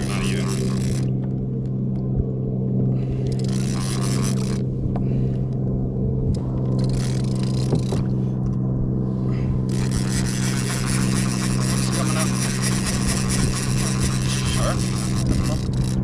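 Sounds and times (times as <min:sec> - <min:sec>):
mechanical hum: 0:00.0 - 0:16.0
rushing scraping noise: 0:09.7 - 0:16.0.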